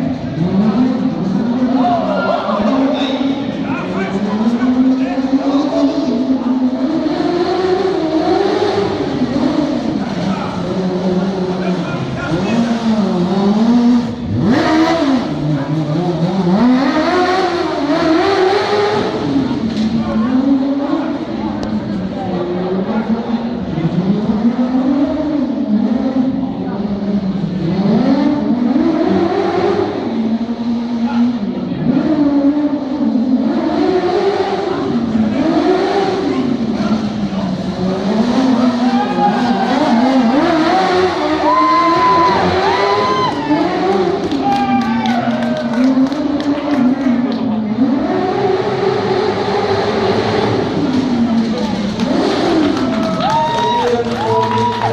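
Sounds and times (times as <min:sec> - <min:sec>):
racing lawnmower engine revving: 0:00.0 - 0:01.8, 0:02.4 - 0:54.9
lawnmower engine revving: 0:39.6 - 0:43.0.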